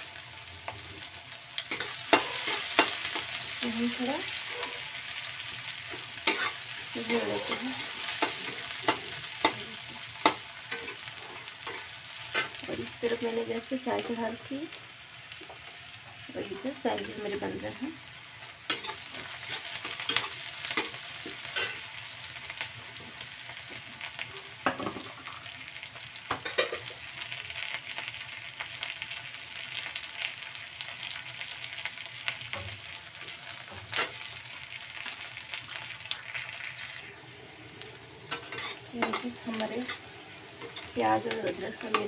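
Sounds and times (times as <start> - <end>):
vegetables sizzling in hot oil: 0.0 - 42.0
metal spatula scraping a pan: 1.7 - 3.5, 4.2 - 12.6, 18.7 - 21.9, 38.3 - 42.0.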